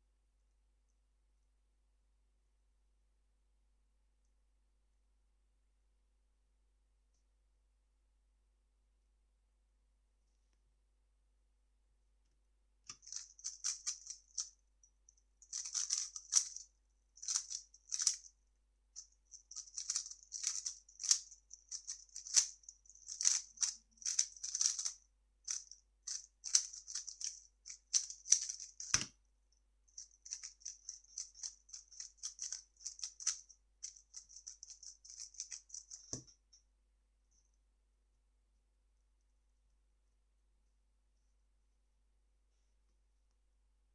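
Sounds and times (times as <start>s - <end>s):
puzzle cube clicky turns: 12.9s - 14.5s, 19.5s - 24.9s, 25.5s - 29.1s.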